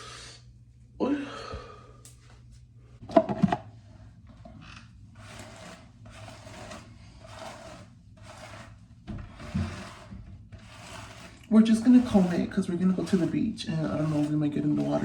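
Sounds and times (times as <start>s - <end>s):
comb scratching through hair: 5.2s - 8.8s, 9.4s - 15.0s.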